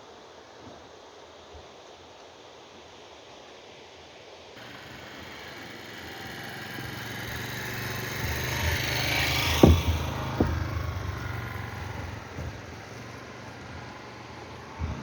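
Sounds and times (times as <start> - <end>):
motor vehicle passing by: 4.6 - 15.0
sharp thumps: 4.6 - 15.0.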